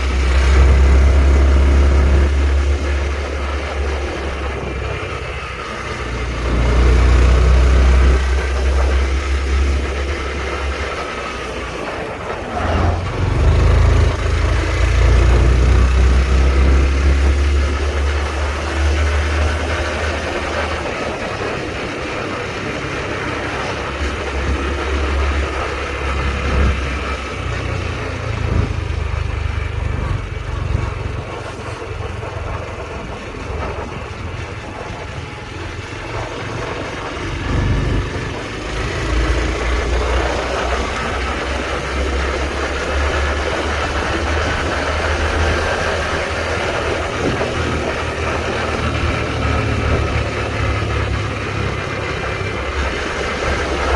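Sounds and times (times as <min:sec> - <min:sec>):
motorcycle engine running: 0:00.0 - 0:53.9
road noise: 0:00.0 - 0:53.9.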